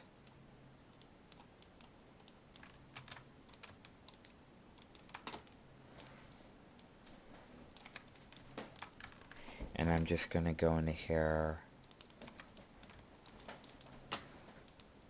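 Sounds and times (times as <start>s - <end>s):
keyboard typing: 1.0s - 6.1s, 7.7s - 10.2s, 11.8s - 15.0s.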